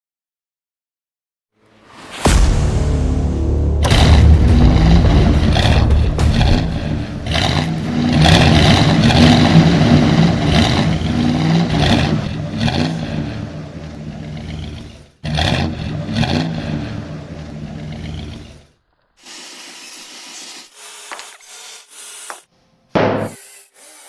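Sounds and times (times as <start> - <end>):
car engine revving: 1.6 - 18.8.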